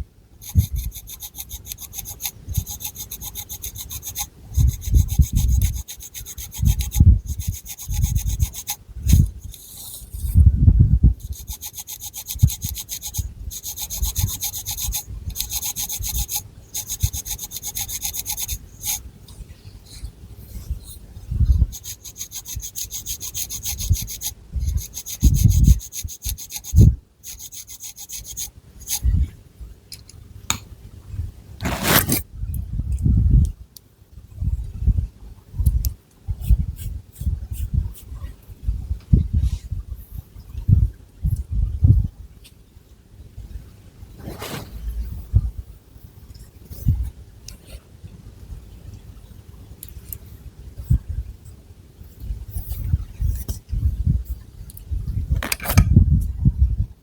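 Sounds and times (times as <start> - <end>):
fingernails scratching hair: 0.4 - 10.4, 11.2 - 19.0, 21.6 - 29.0, 31.6 - 32.2, 44.2 - 44.8.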